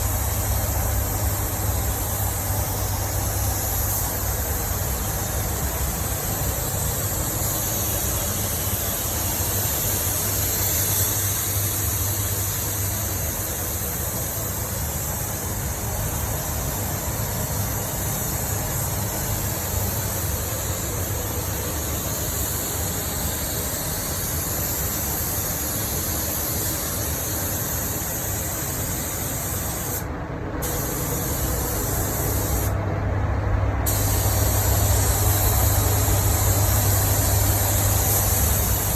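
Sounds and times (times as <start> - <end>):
spray gun hissing: 0.0 - 32.8, 33.8 - 38.9
low fan hum: 27.4 - 38.9.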